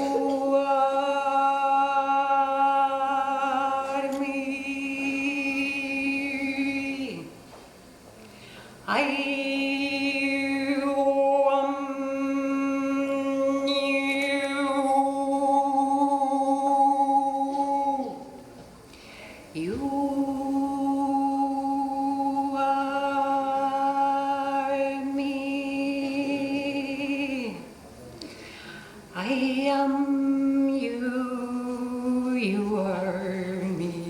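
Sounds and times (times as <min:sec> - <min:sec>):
woman singing long held notes: 0:00.0 - 0:07.4, 0:08.8 - 0:18.4, 0:19.4 - 0:27.8, 0:29.1 - 0:34.0
breath: 0:08.2 - 0:08.8, 0:18.9 - 0:19.5, 0:28.2 - 0:29.1.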